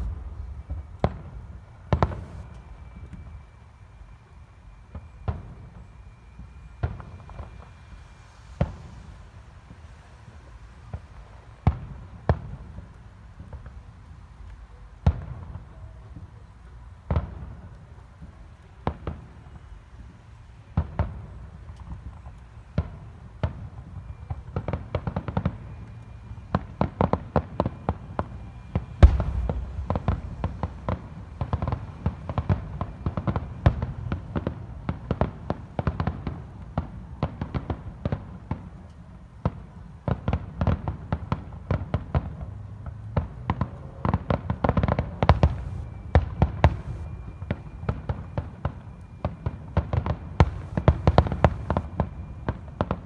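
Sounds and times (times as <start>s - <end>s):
fireworks shells bursting: 27.6s - 33.6s.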